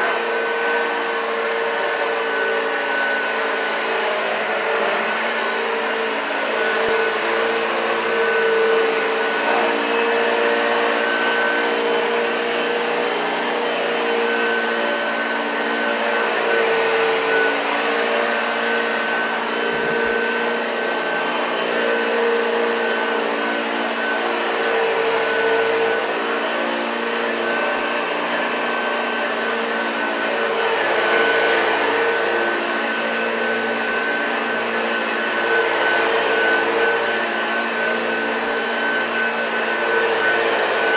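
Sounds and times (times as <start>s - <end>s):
vacuum cleaner motor hum: 0.0s - 40.9s.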